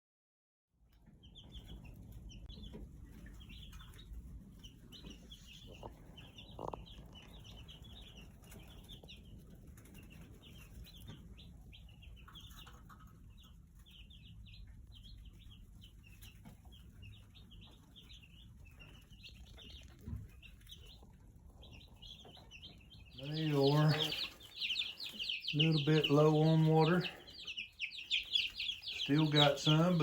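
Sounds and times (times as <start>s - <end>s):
chicks peeping: 0.8s - 30.0s.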